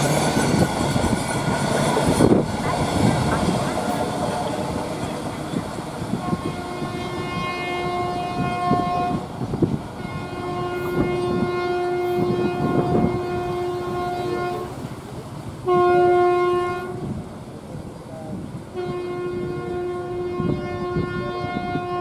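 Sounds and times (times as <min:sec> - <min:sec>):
freight wagons clattering on rails: 0:00.0 - 0:06.7
train horn blasts: 0:06.1 - 0:09.3, 0:10.0 - 0:14.8, 0:15.6 - 0:17.2, 0:18.7 - 0:22.0.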